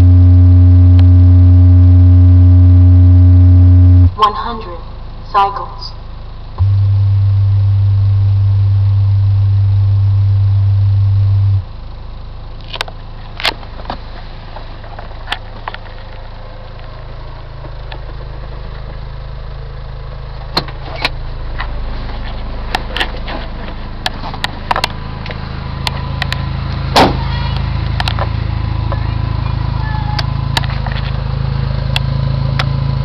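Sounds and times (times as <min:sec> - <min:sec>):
bass test tone: 0:00.0 - 0:13.8
car engine idling: 0:00.0 - 0:33.0.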